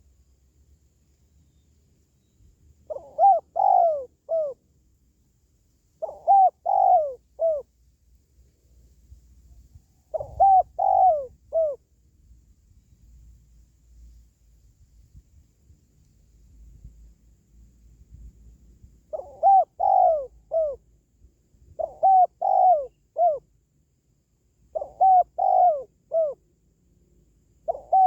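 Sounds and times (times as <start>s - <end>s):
dove cooing: 2.9s - 4.6s, 6.0s - 7.7s, 10.1s - 11.8s, 19.1s - 20.8s, 21.7s - 23.4s, 24.7s - 26.4s, 27.6s - 28.0s.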